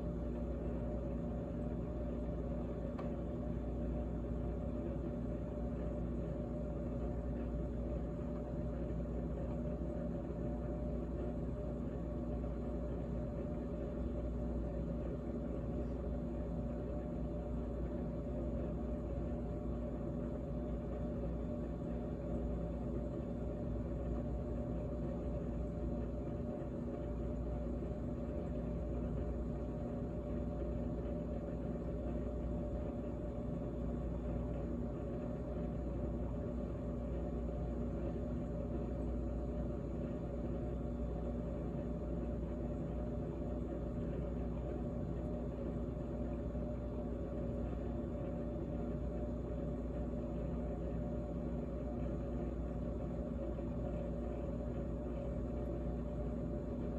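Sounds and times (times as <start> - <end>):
refrigerator humming: 0.0 - 56.9.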